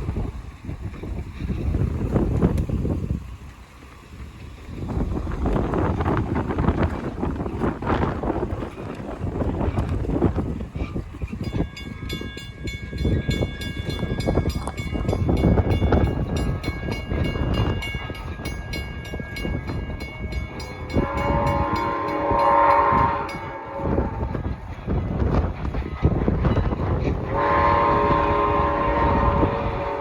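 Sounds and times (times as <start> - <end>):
train passing with clicking: 0.0 - 30.0
train horn blast: 20.8 - 24.6, 27.0 - 30.0.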